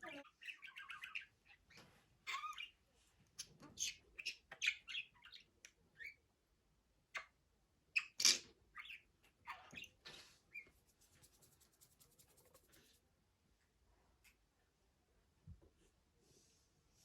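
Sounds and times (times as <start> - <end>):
budgerigar chirping: 0.0 - 1.7, 2.3 - 2.8, 3.8 - 6.2, 8.0 - 10.7.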